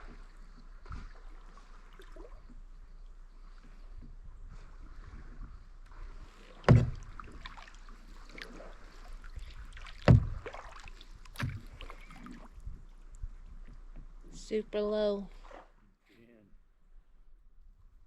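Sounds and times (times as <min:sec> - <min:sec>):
paddle knocking against kayak: 0:06.4 - 0:12.5
water washing: 0:06.4 - 0:12.5.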